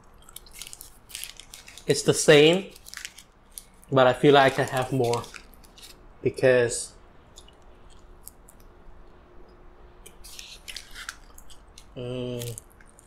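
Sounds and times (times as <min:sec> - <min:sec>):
biting and chewing: 0:00.0 - 0:01.9, 0:07.3 - 0:09.1, 0:10.1 - 0:13.0
wet clicks and crackles: 0:02.8 - 0:06.0, 0:07.3 - 0:09.2.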